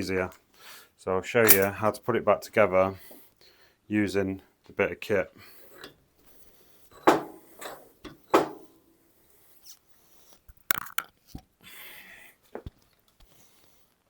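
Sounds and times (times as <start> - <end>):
metal parts clanking: 1.4 - 1.8
sharp metal clicks: 1.5 - 1.7.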